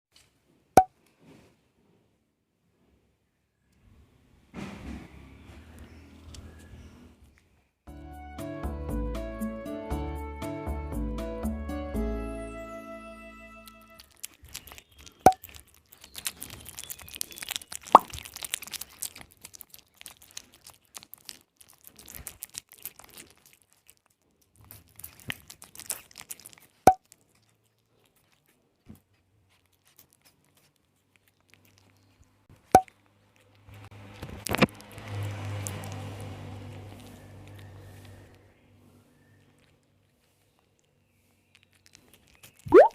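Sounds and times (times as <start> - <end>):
rustling noise: 0.1 - 3.1
cat mouth clicks and smacks: 13.8 - 38.4, 39.4 - 42.9
sharp plops: 42.7 - 42.9.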